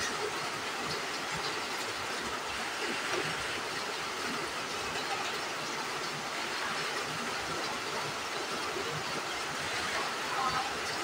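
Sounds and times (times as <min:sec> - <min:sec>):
rain falling: 0:00.0 - 0:11.0.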